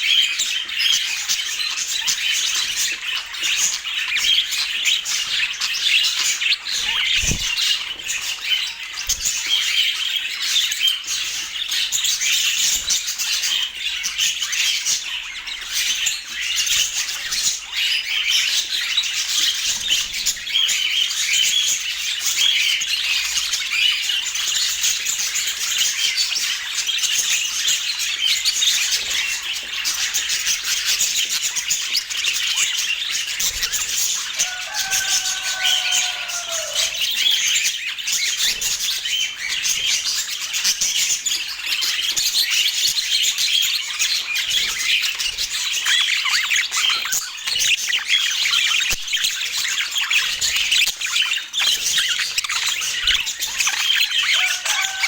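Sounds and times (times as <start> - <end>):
budgerigars chattering: 0.0 - 55.0
low drawn-out bird call: 34.4 - 37.2.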